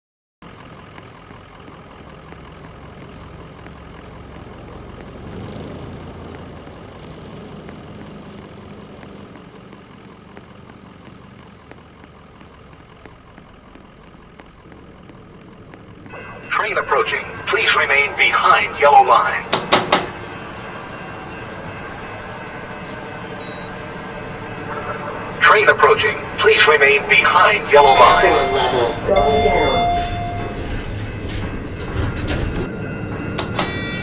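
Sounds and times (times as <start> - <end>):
faint regular ticks: 0.5 - 16.1.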